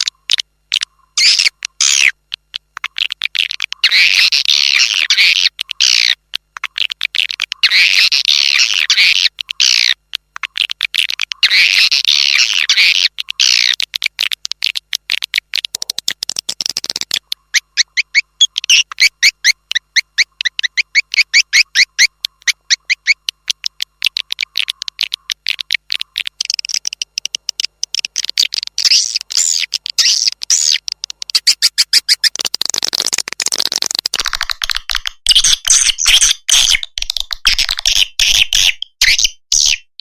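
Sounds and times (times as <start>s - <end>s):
swiftlet chirps and twitters: 0.7s - 2.2s, 16.3s - 33.8s.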